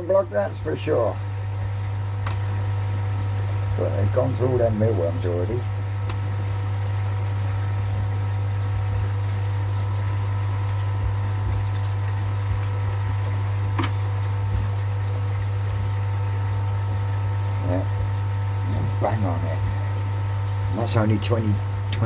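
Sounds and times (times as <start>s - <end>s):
electric pump humming: 0.0s - 22.0s.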